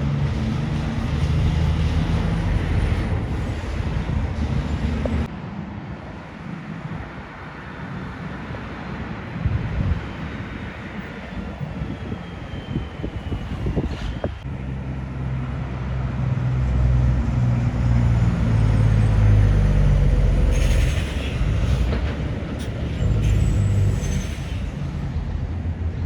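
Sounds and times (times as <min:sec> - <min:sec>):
diesel truck driving past: 0:14.5 - 0:24.1.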